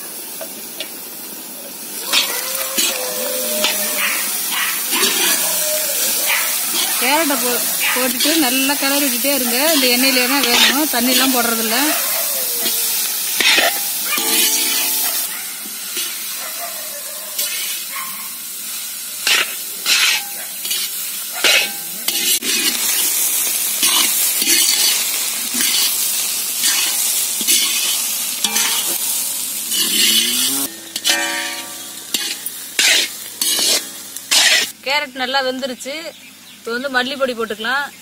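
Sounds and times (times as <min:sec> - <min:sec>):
vegetables sizzling in oil: 0:00.0 - 0:38.0
metal ladle scraping a pan: 0:02.1 - 0:11.8, 0:12.6 - 0:15.3, 0:15.9 - 0:16.4, 0:17.4 - 0:17.9, 0:19.2 - 0:34.8.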